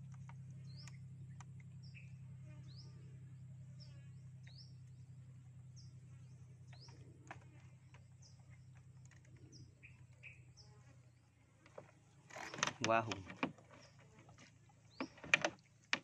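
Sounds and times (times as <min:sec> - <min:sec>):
faint small bird chirps: 0:00.0 - 0:05.1, 0:05.7 - 0:10.9
steady low hum: 0:00.0 - 0:16.0.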